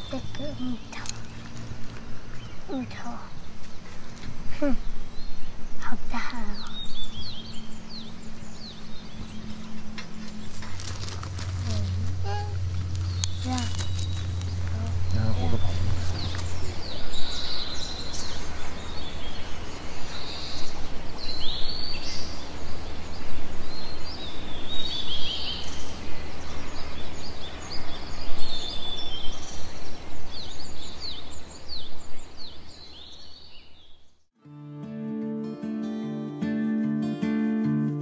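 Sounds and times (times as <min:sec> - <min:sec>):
rough background noise: 0:00.0 - 0:19.8
birds chirping: 0:00.0 - 0:34.2
low hum: 0:06.7 - 0:18.9.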